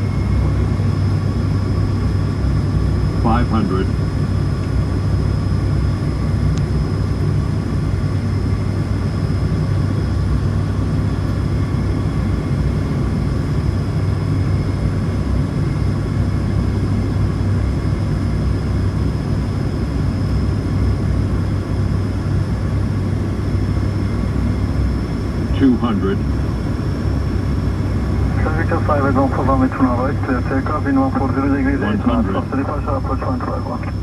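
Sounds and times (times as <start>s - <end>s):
high-pitched whine: 0.0s - 4.1s, 25.0s - 34.0s
turboprop engines droning: 0.0s - 34.0s.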